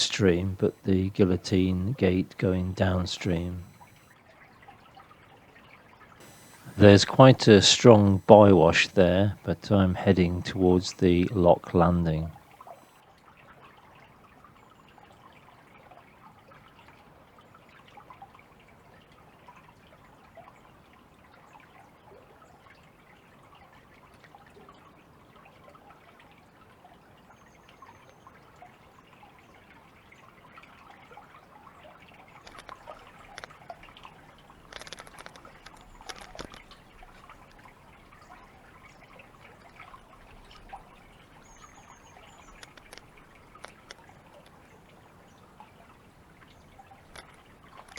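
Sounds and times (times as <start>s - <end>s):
water trickling and splashing: 13.3s - 47.9s.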